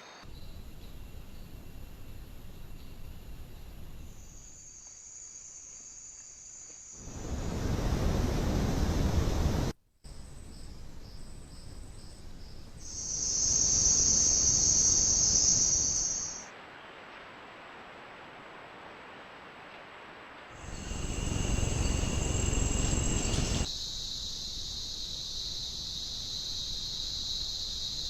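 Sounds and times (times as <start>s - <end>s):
insect pulsing chirp: 0.0s - 9.2s, 10.1s - 16.5s, 20.6s - 28.0s
high-pitched insect buzz: 12.8s - 16.5s, 20.6s - 28.0s.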